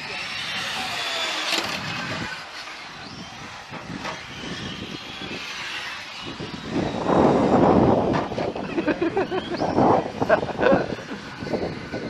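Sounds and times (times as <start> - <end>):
radio-controlled car motors whining: 0.0 - 12.0
steady background noise: 0.0 - 12.0.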